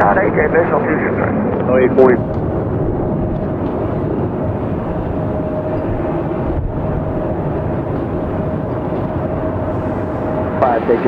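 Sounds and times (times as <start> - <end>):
jet engines rumbling: 0.0 - 11.0
thin steady whine: 0.0 - 11.0.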